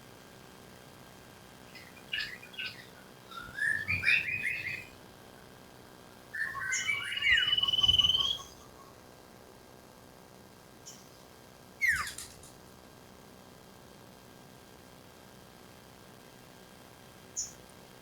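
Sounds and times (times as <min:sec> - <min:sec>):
bird chirps whistles and trill: 0:01.7 - 0:05.0, 0:06.3 - 0:08.6, 0:11.8 - 0:12.3.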